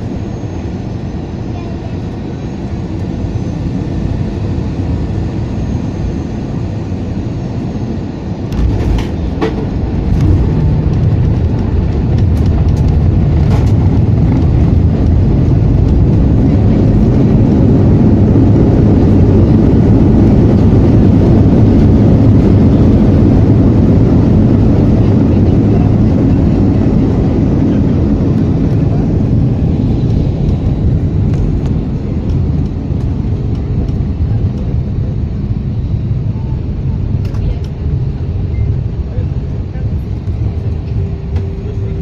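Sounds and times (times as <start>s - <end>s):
jet engines reverse thrust roar: 0.0s - 42.0s
sharp knocks of plane landing: 8.5s - 16.7s.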